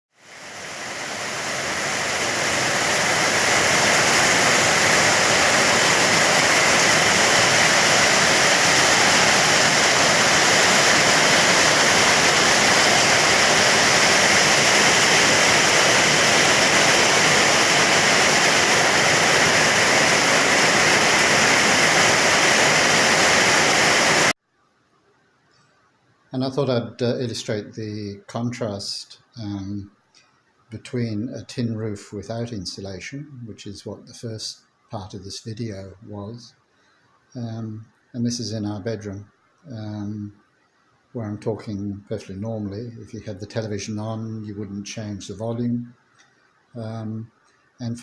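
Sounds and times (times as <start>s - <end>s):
heavy rain on a steel roof: 0.2s - 24.4s.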